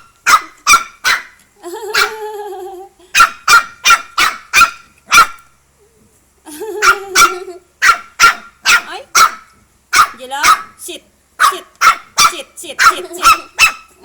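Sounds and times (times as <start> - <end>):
dog barking: 0.0 - 2.2, 3.1 - 5.4, 6.8 - 10.8, 11.4 - 14.0.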